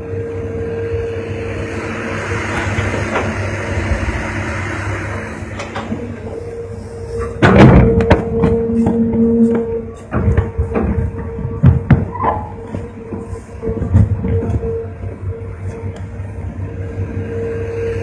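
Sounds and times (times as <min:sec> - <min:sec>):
excavator engine humming: 0:00.0 - 0:18.0
loud clattering knocks: 0:07.4 - 0:14.6.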